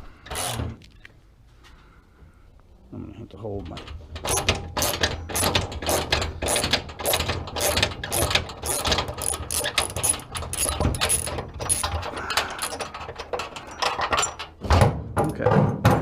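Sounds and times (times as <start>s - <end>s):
ratchet wrench clicking: 0.3s - 0.6s, 4.3s - 12.0s.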